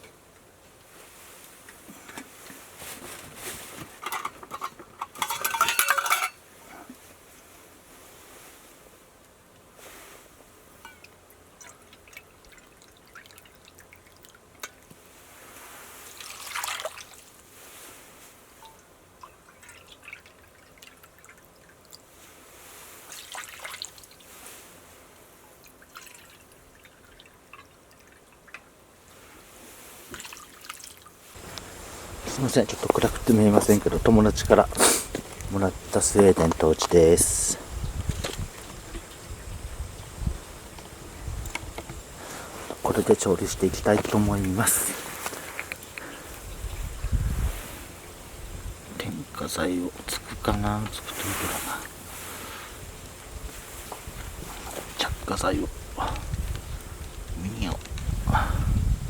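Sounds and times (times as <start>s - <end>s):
metal cookware clattering: 4.0s - 6.4s
water dripping and trickling: 10.8s - 15.0s, 16.0s - 17.4s, 18.6s - 24.4s, 25.4s - 28.8s, 30.1s - 31.2s.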